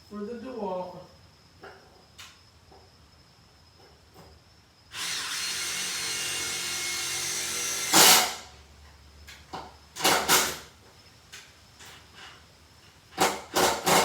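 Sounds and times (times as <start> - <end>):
impact driver motor whine: 4.9 - 8.4
impact driver harsh bursts: 4.9 - 8.5.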